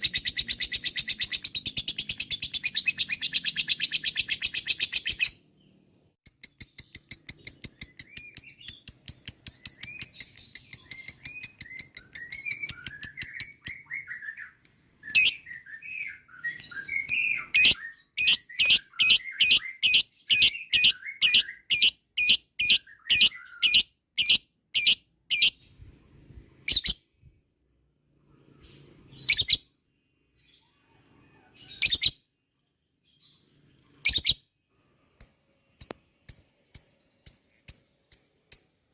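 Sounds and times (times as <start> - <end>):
lovebird high-pitched chatter: 0.0 - 5.5, 6.2 - 14.4, 15.0 - 27.1, 28.6 - 29.8, 30.5 - 32.3, 33.1 - 34.5
shrill bird calls: 0.0 - 27.3, 28.2 - 32.4, 33.0 - 34.6
soft bird twittering: 0.0 - 38.9.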